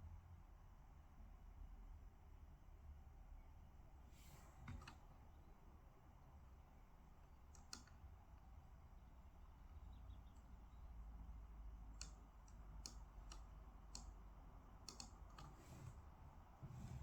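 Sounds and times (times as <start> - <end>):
faint low hum: 0.0 - 17.0
computer clicks: 7.4 - 8.0, 11.9 - 15.6.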